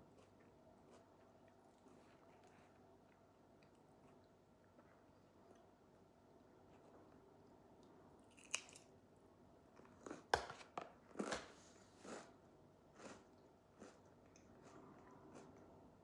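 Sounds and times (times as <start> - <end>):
person chewing crunchy food: 8.3 - 8.9, 9.8 - 15.8.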